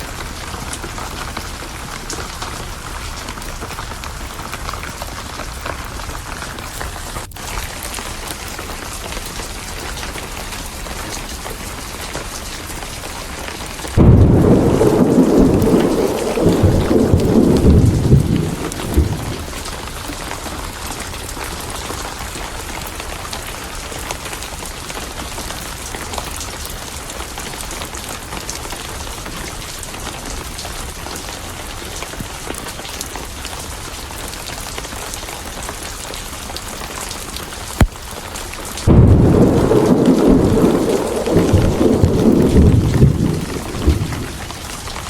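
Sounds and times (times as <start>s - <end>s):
rain hiss: 0.0s - 45.0s
rolling thunder: 13.8s - 20.4s, 38.8s - 45.0s.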